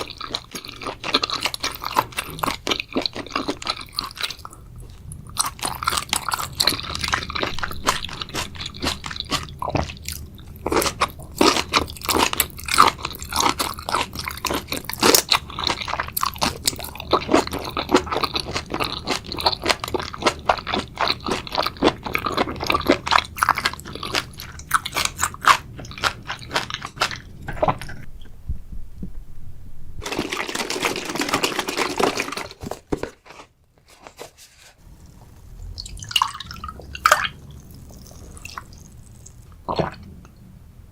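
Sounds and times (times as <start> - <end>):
crunchy chewing and biting: 0.0 - 28.1
steady noise: 28.0 - 30.5.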